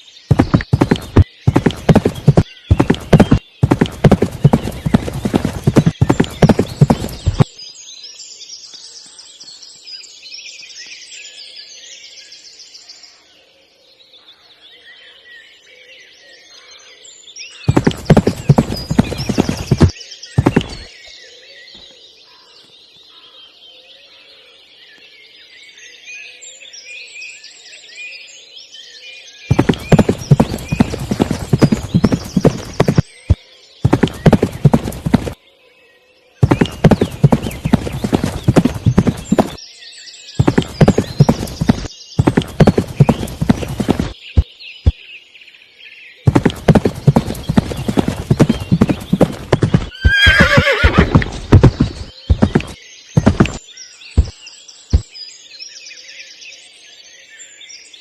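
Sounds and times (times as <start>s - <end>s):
faint chirping: 46.3s - 55.1s.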